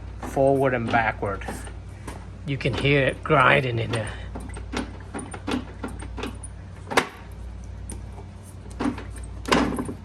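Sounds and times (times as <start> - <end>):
motorcycle drive clunks and clicks: 0.2 - 8.1.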